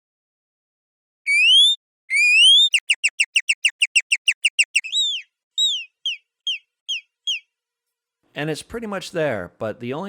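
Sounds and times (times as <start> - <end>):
synthetic birdsong whistles and chirps: 1.3 - 7.5.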